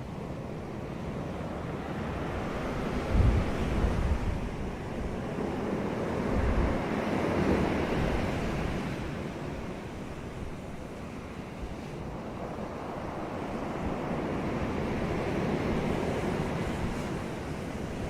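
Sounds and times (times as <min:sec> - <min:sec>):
sea waves washing onto beach: 0:00.3 - 0:18.0.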